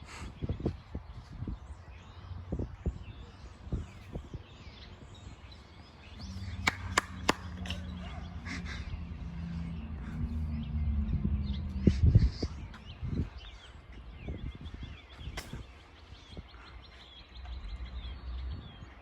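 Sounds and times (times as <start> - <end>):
small birds chirping: 0.0 - 19.0
low engine hum: 4.6 - 19.0
sharp clicks: 6.6 - 7.8.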